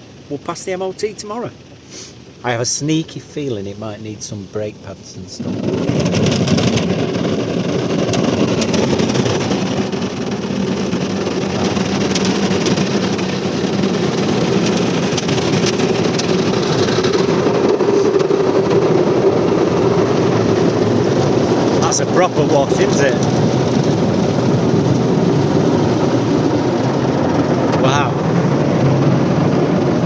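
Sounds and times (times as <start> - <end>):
car wash machinery rushing: 0.0 - 30.0.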